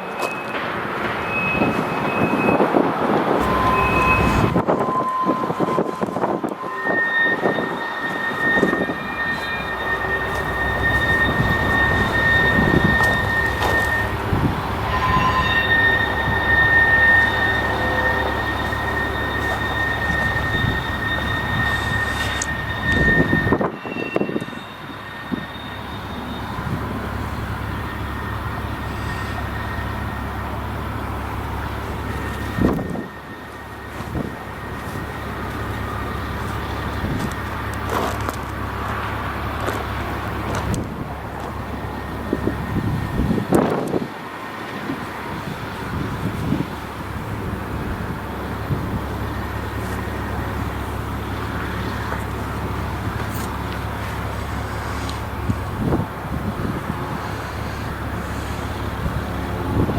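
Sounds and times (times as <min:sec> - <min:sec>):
passing vehicle rumble: 0:00.0 - 0:07.3, 0:07.9 - 0:23.8
train wheels rumbling on rail: 0:00.0 - 0:59.9
faint high steady tone: 0:03.4 - 0:37.6.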